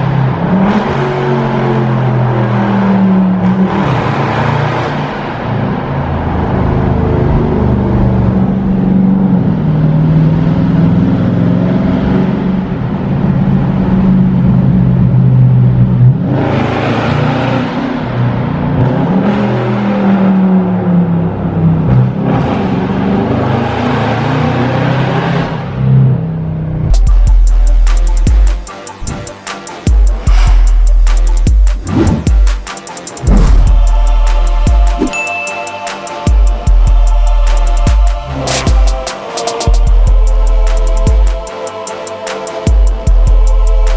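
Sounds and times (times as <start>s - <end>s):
car engine running while driven: 33.3s - 33.8s.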